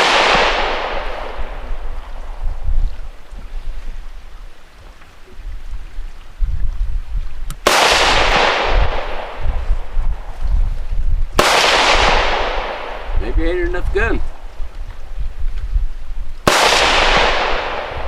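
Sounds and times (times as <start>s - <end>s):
rifle shots echoing: 0.0s - 2.2s, 7.6s - 10.0s, 11.4s - 13.6s, 16.4s - 18.0s
wind rumble on microphone: 0.0s - 18.0s.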